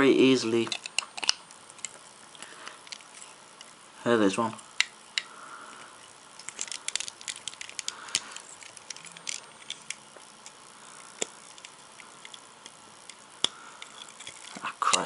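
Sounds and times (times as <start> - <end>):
plastic bricks clicking: 0.6 - 2.0.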